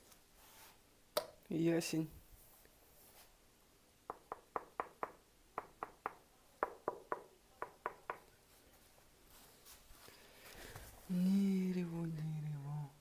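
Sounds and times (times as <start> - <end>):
knuckles knocking on wood: 4.1 - 8.3.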